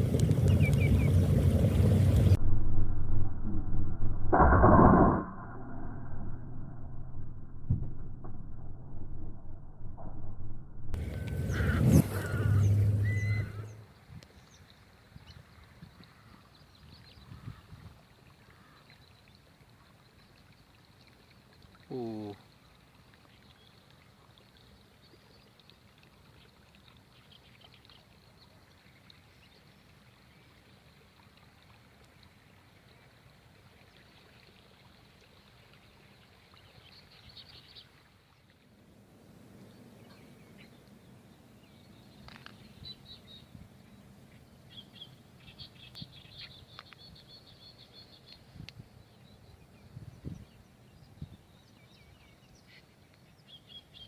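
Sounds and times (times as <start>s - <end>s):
small birds chirping: 0.3s - 2.4s, 39.6s - 54.0s.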